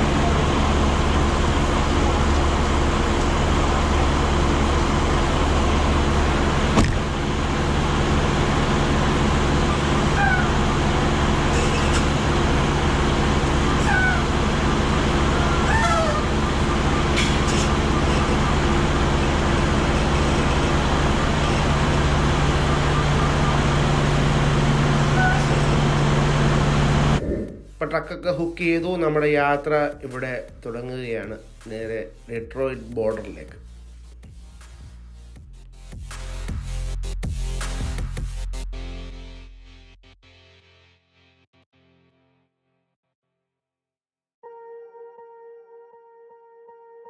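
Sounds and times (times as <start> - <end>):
diesel engine idling: 0.0 - 29.3.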